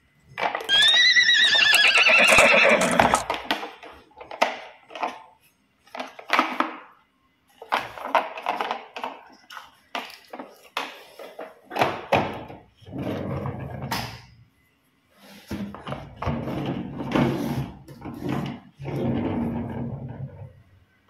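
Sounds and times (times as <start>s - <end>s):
horse whinnying: 0.7s - 3.3s.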